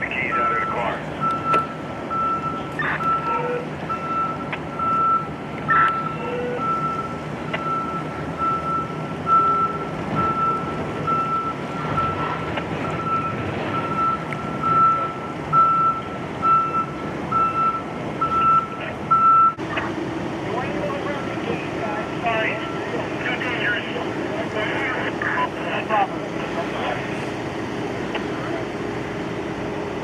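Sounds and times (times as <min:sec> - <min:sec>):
truck reversing alarm beeping: 0:00.0 - 0:19.9, 0:22.2 - 0:27.4
truck engine running: 0:00.0 - 0:30.0.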